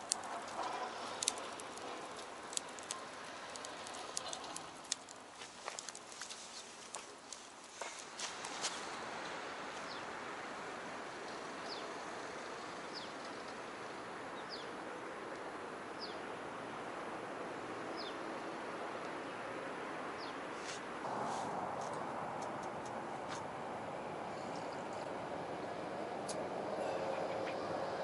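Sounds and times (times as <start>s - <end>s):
faint clicks: 0.0s - 8.0s
steady hiss: 0.0s - 14.4s.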